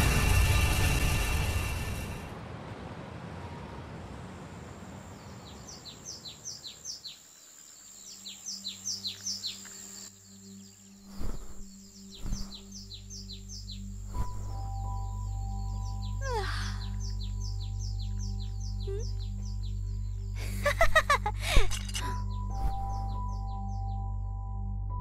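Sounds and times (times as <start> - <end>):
small birds chirping: 5.0 - 24.1.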